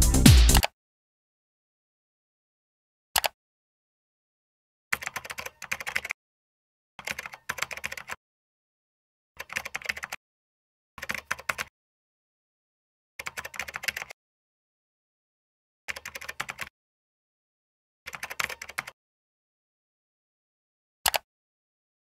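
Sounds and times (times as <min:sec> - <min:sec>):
typing on computer keyboard: 0:03.2 - 0:03.4, 0:04.9 - 0:06.2, 0:07.0 - 0:08.2, 0:09.4 - 0:10.2, 0:11.0 - 0:11.7, 0:13.2 - 0:14.2, 0:15.9 - 0:16.7, 0:18.1 - 0:19.0, 0:21.1 - 0:21.3.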